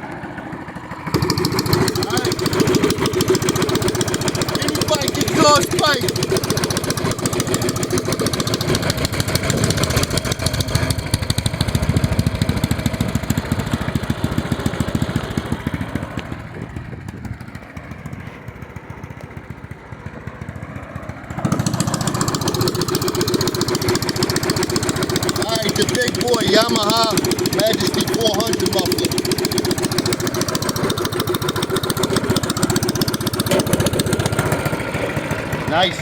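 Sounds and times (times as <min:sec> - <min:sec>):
engine revving through exhaust: 0:01.0 - 0:17.1, 0:21.2 - 0:36.0.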